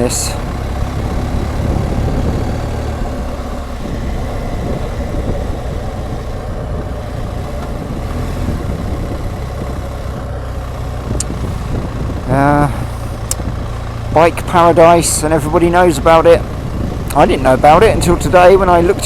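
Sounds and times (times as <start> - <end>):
motorcycle engine running: 0.0 - 19.0
road noise: 0.0 - 19.0
wind on microphone: 0.7 - 10.3, 11.0 - 13.7, 16.5 - 19.0.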